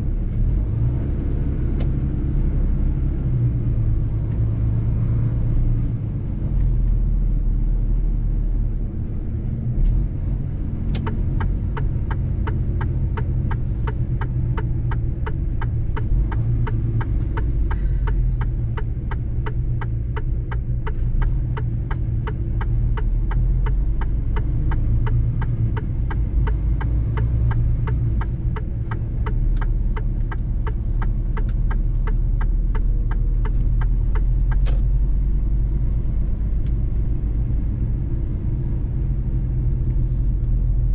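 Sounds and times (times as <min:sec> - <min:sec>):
truck engine and tyres rumbling: 0:00.0 - 0:40.9
regular ticking: 0:10.9 - 0:38.1.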